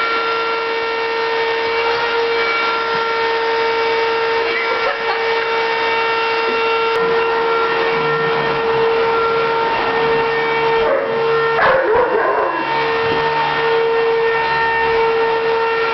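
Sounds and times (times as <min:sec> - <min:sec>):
vacuum cleaner whining: 0:00.0 - 0:15.9
dog barking: 0:04.6 - 0:05.2, 0:10.8 - 0:12.8.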